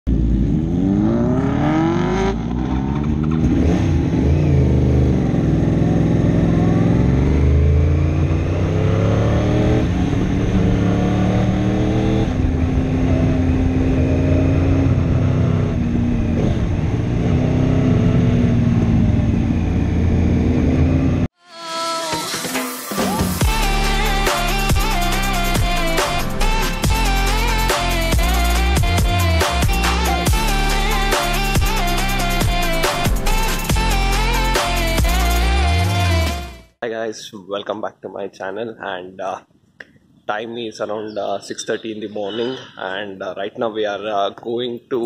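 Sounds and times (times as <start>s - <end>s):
motorcycle engine revving: 0.1s - 21.3s
electronic music: 21.4s - 36.7s.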